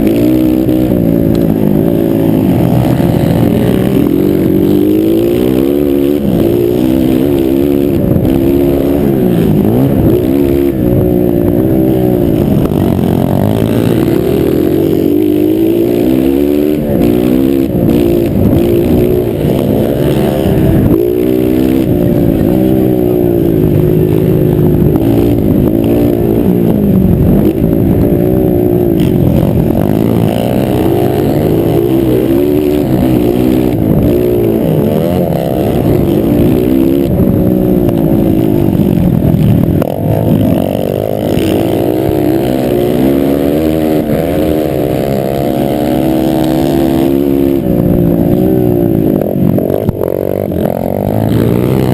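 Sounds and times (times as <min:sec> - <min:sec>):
motocross bike engines revving: 0:00.0 - 0:51.9.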